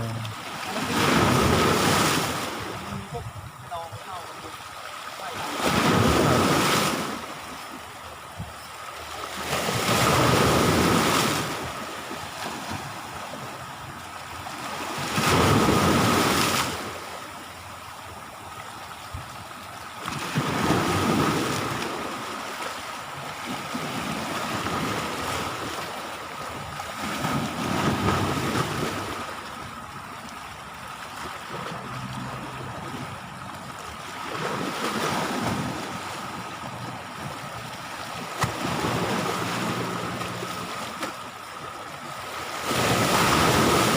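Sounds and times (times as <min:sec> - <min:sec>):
sea waves breaking on shore: 0:00.0 - 0:43.9.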